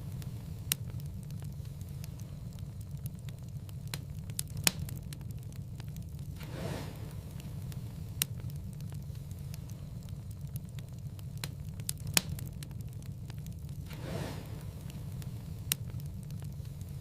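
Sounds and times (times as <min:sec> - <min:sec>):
wood fire crackling: 0:00.0 - 0:17.0
soft rush of sound: 0:05.9 - 0:11.8, 0:12.4 - 0:17.0.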